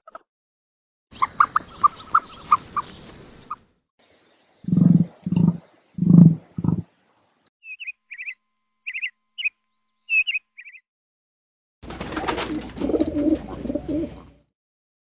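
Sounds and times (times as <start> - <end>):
high bird chirps: 1.1 - 3.6, 4.6 - 6.9, 7.6 - 10.9
pigeon cooing: 12.2 - 14.4.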